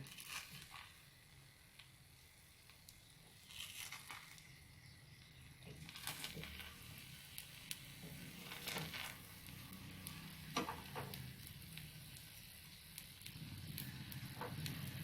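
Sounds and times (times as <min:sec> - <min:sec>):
spatula scraping frying pan: 0:08.1 - 0:09.2.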